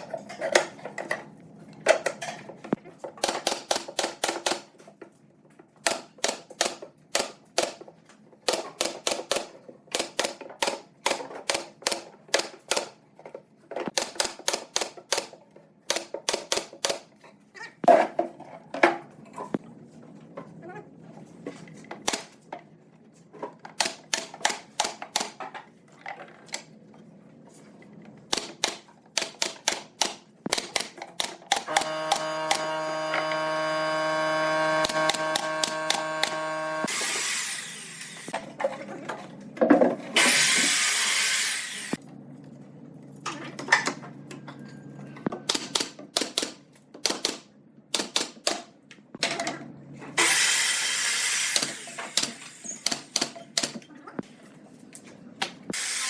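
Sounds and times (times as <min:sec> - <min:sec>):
power tool motor running: 0:31.6 - 0:38.3, 0:40.2 - 0:42.0.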